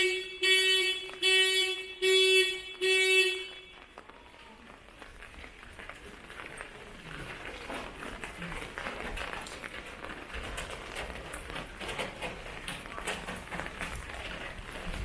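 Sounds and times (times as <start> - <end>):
vehicle horn beeps: 0.0 - 3.9
low street background: 0.0 - 15.0.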